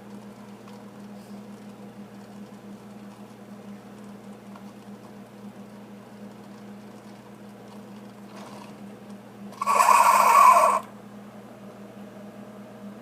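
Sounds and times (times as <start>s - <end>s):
coffee maker humming: 0.0s - 13.0s
hissing sputter: 9.6s - 10.9s.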